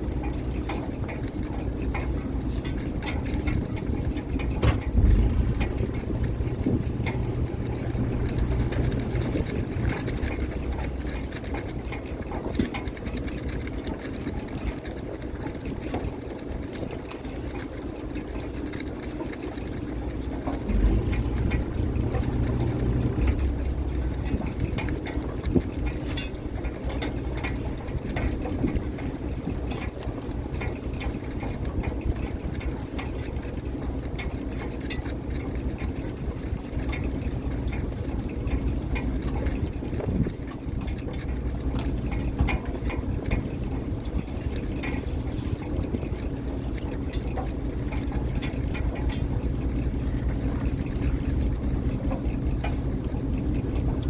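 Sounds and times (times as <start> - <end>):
boat engine running: 0.0 - 54.0
water sounds: 0.0 - 54.0
knocks and clatter on deck: 4.4 - 10.0.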